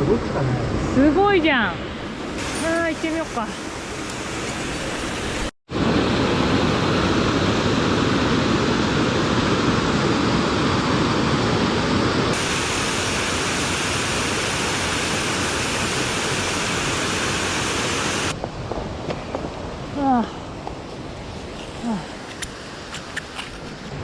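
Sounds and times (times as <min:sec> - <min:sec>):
waterfall roaring: 0:02.4 - 0:18.4.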